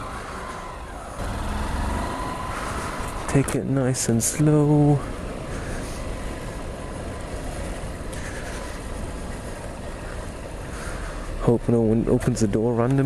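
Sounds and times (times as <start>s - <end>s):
motorcycle engine running: 1.1s - 3.6s.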